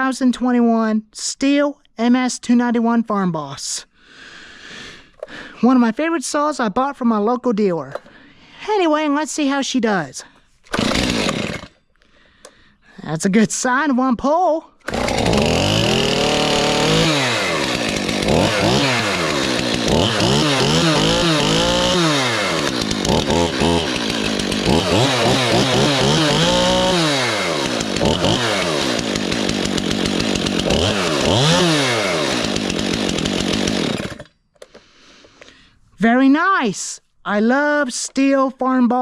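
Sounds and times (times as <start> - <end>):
chainsaw revving and idling: 10.7 - 11.8, 14.8 - 34.8.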